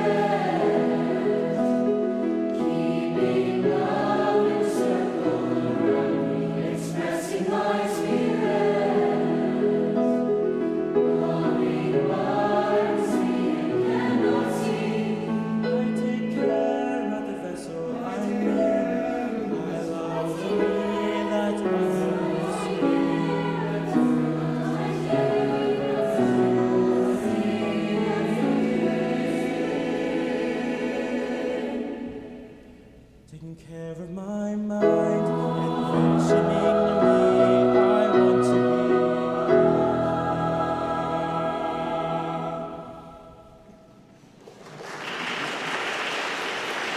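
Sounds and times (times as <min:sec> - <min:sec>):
choir singing in harmony: 0:00.0 - 0:33.1, 0:34.8 - 0:44.3.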